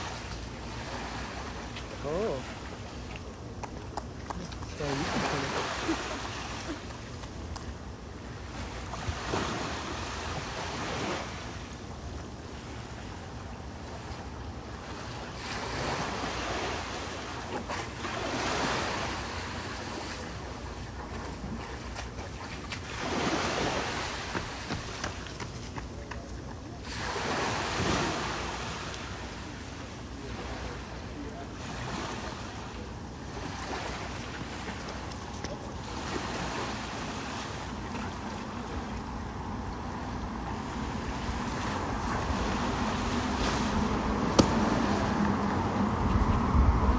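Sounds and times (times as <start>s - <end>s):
wind rumble on microphone: 0.0s - 46.9s
ocean surf breaking: 4.6s - 7.0s, 8.4s - 11.8s, 14.7s - 20.5s, 22.8s - 25.4s, 26.8s - 46.9s
wind on microphone: 33.5s - 46.9s.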